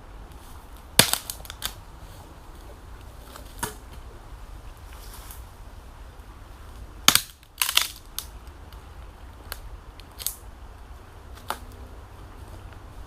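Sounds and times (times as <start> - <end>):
sharp cracks and crunches: 0.4 - 1.8, 7.0 - 8.8, 9.4 - 10.4.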